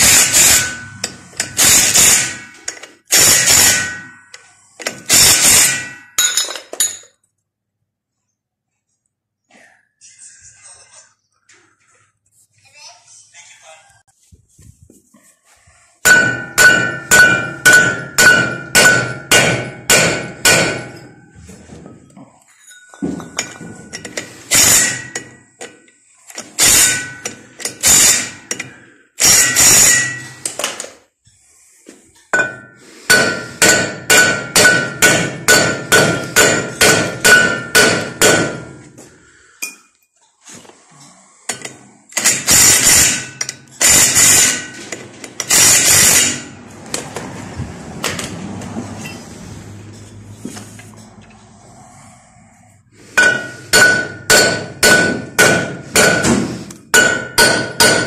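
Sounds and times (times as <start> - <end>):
hammer striking metal: 0.0 - 7.0, 16.0 - 21.3, 22.9 - 25.4, 26.6 - 30.6, 32.3 - 39.0, 42.2 - 47.0, 53.1 - 58.0.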